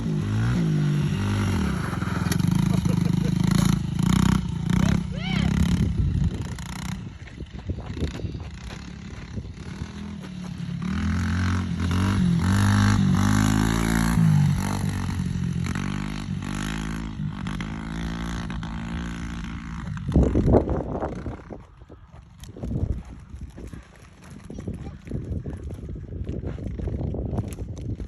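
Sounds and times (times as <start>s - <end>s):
dirt bike engine revving: 0.0s - 21.6s.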